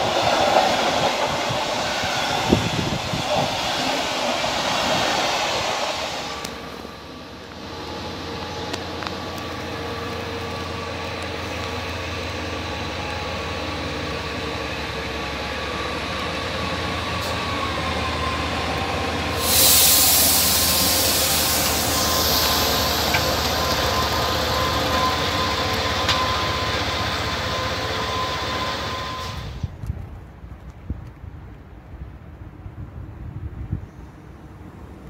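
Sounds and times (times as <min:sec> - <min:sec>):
train running past: 0:00.0 - 0:29.8
loud high hiss: 0:19.3 - 0:23.7.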